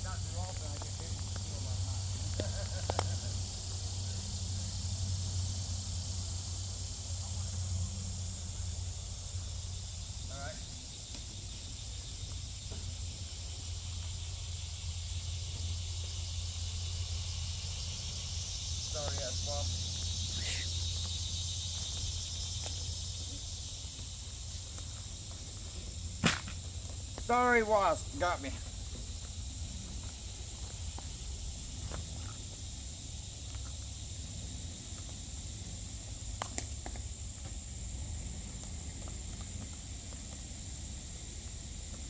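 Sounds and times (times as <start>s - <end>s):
insects buzzing: 0.0s - 42.0s
faint ticks: 38.4s - 40.4s.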